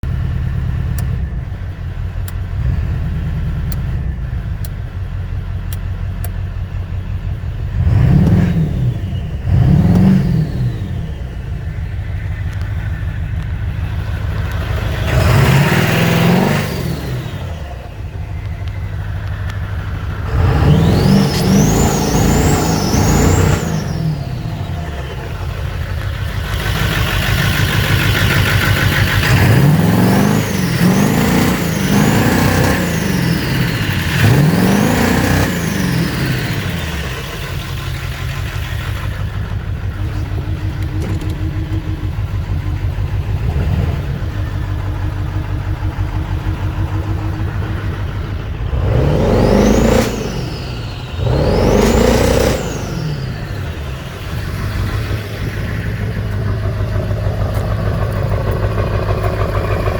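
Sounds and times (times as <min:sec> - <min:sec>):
diesel engine revving with misfire: 0:00.0 - 0:59.9
turbo whine: 0:00.0 - 0:59.9.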